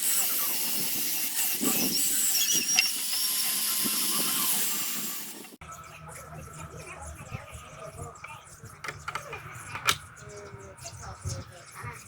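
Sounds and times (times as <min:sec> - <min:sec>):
tool hissing on carved wood: 0:00.0 - 0:05.6.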